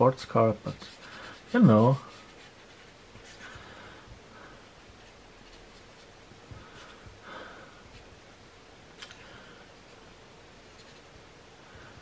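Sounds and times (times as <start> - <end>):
pen scratching on paper: 0.7 - 3.7, 4.8 - 6.1, 10.6 - 11.1.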